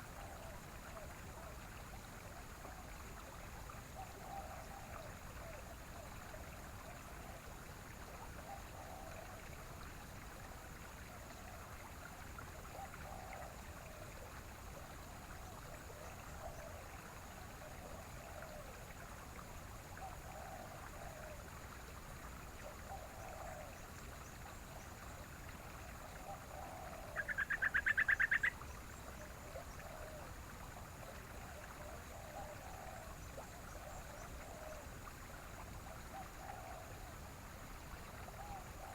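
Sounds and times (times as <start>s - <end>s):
running water: 0.1s - 38.9s
soft low bird calls: 26.2s - 30.3s.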